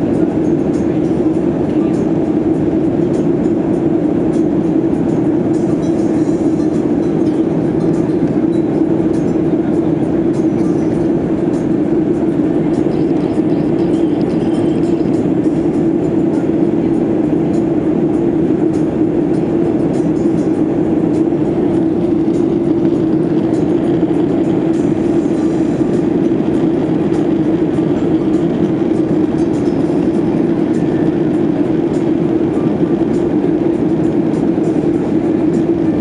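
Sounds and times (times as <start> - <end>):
airliner cabin drone: 0.0 - 36.0.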